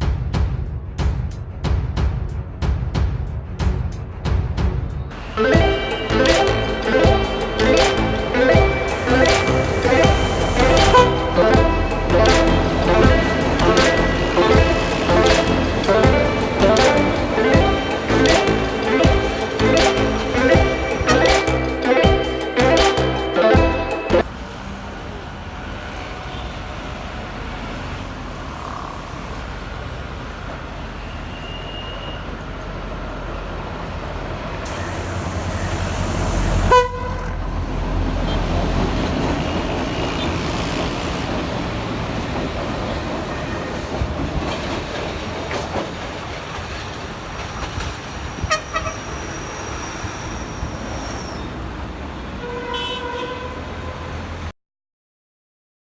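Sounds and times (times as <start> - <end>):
diesel locomotive running: 5.1 - 52.5
train horn toot: 5.2 - 19.6, 35.6 - 38.6, 48.4 - 51.4, 52.4 - 54.2.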